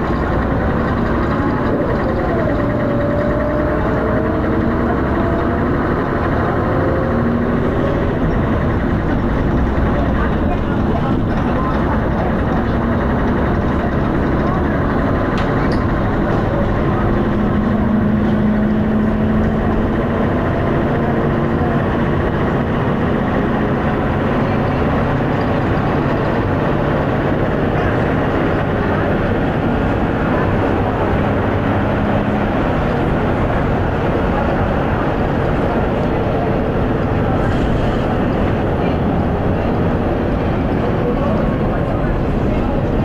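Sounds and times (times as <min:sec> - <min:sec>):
bus diesel engine running: 0:00.0 - 0:43.0.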